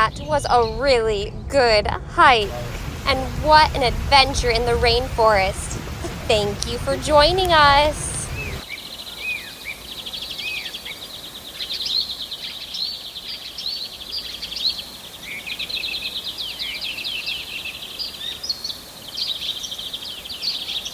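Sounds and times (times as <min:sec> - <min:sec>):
forest birds chirping: 0:02.2 - 0:20.9
fast repeated bird trills: 0:06.6 - 0:09.7.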